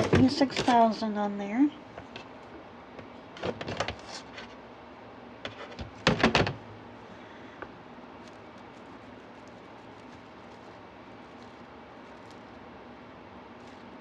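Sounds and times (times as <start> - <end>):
rustling and clicking of craft materials: 7.6 - 12.7, 13.6 - 14.0.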